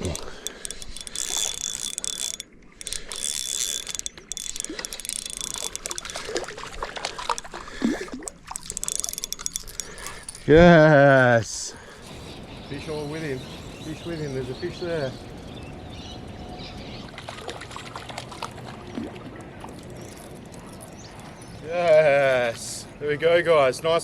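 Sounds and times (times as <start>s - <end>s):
fishing reel gears whining: 0.0s - 18.0s, 19.7s - 22.9s.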